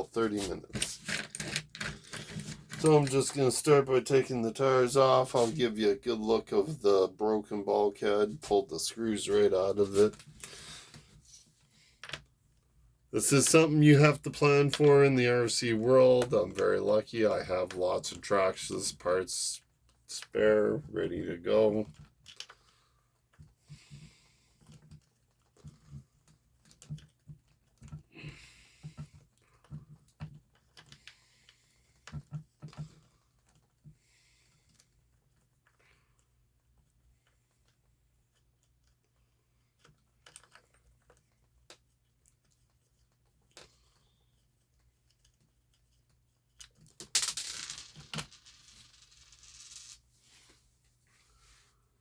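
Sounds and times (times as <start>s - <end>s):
clicks and taps of small parts: 39.8s - 43.8s
small plastic parts clicking: 39.8s - 48.6s.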